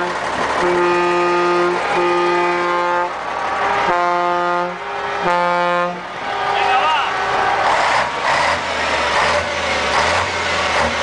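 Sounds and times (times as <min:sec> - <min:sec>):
truck air horn blasts: 0:00.0 - 0:07.6.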